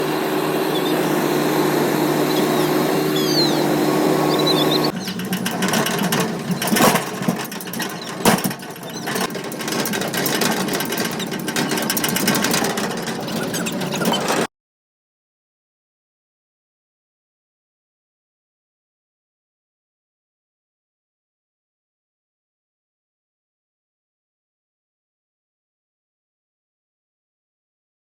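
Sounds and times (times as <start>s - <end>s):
machinery clattering rattle: 0.0s - 14.5s
tractor engine humming: 0.0s - 14.5s
loud machinery knocks: 4.9s - 14.5s.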